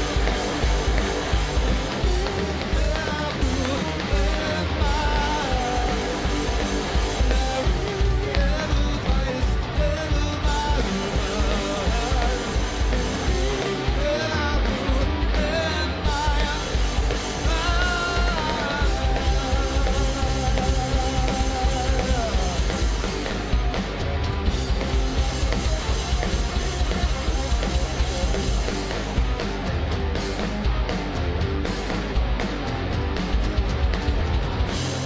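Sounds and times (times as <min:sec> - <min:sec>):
sung lead vocal: 0:00.0 - 0:23.6
live rock band playing: 0:00.0 - 0:35.0.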